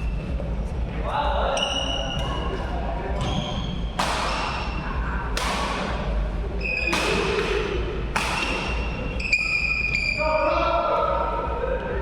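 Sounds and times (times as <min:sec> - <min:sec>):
shoes squeaking on court floor: 0:01.6 - 0:04.8, 0:08.4 - 0:10.2
racket hitting shuttlecock: 0:03.9 - 0:06.0, 0:06.7 - 0:09.1.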